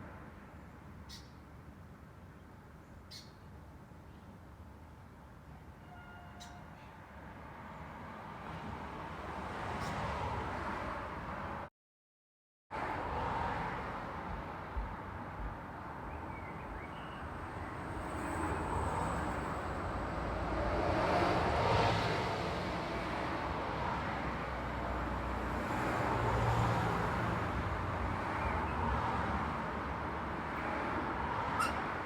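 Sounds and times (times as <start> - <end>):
road traffic passing: 7.2 - 11.7, 12.8 - 32.0.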